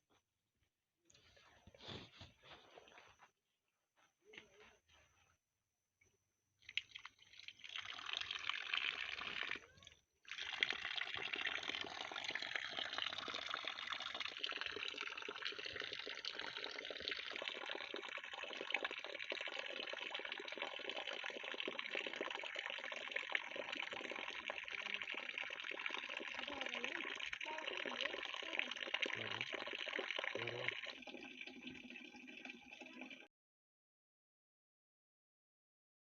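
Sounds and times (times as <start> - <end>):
running water trickling: 6.6 - 33.3.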